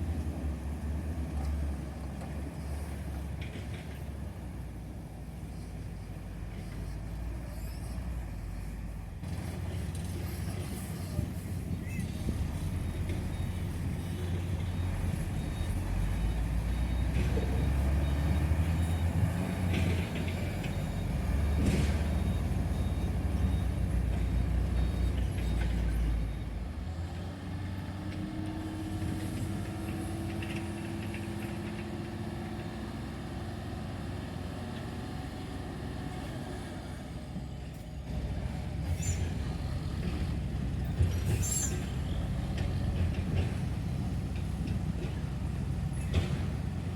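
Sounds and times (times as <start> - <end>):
heavy diesel engines running: 0.0 - 46.9
brief high squeal: 41.3 - 42.1.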